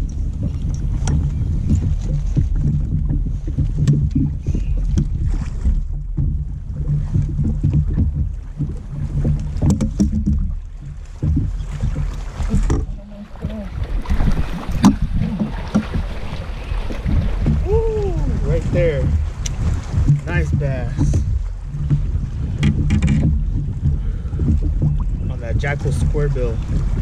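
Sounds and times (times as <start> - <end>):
low hum: 0.0 - 27.0
wind buffeting microphone: 0.0 - 27.0
knocks and clicks of gear handling: 7.1 - 10.5, 21.0 - 25.0.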